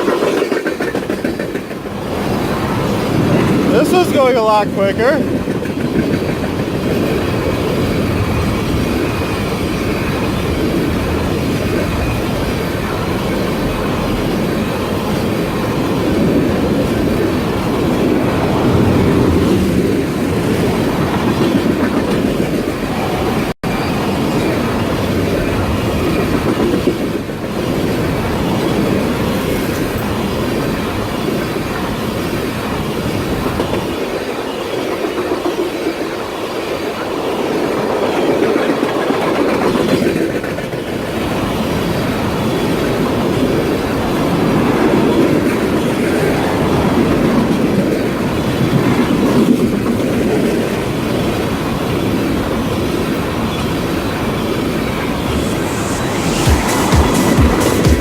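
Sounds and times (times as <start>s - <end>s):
train wheels clacking: 0.0s - 2.4s
train cars rumbling: 0.0s - 58.0s.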